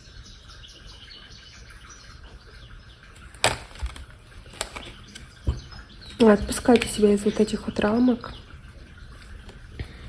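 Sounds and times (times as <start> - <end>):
small birds chirping faintly: 0.0 - 10.0.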